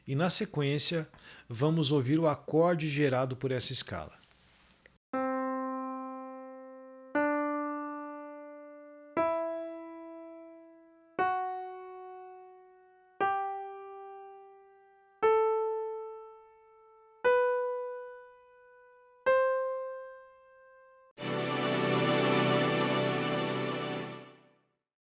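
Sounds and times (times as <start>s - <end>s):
piano keyboard playing a scale: 5.2s - 24.5s.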